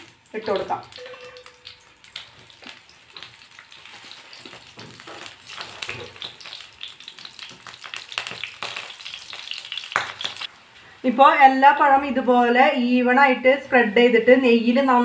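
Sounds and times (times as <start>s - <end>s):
banana slices sizzling in a pan: 0.0s - 11.7s.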